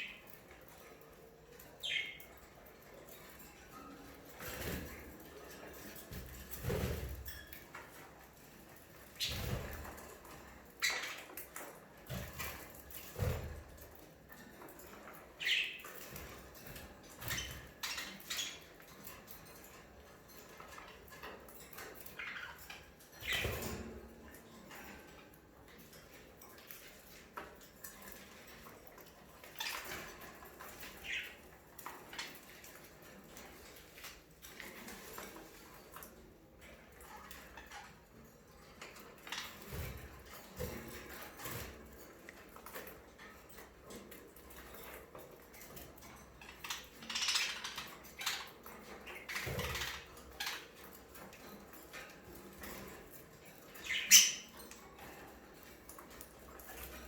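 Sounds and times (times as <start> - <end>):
budgerigars chirping: 1.8 - 2.2, 15.4 - 15.8, 53.8 - 54.5.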